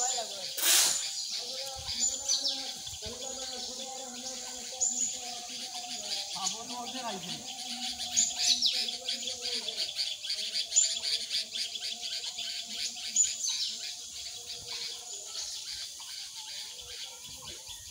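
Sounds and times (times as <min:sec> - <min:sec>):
birds chirping rapidly: 0:00.0 - 0:17.9
bird calls sweeping down in pitch: 0:00.6 - 0:01.2.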